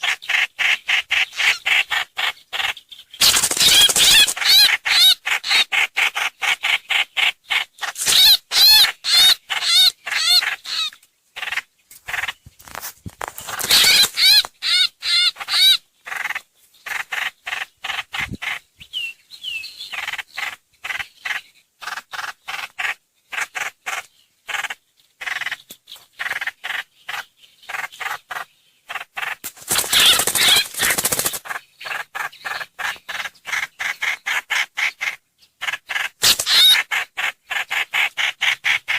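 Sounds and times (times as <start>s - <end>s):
bird harsh chattering: 0.0s - 12.4s, 13.4s - 18.7s, 19.9s - 38.9s
bird quavering notes: 3.2s - 4.7s, 29.7s - 31.4s.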